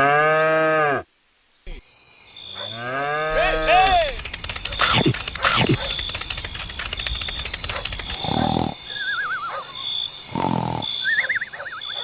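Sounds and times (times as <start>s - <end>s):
fast high chirring: 3.4s - 9.2s.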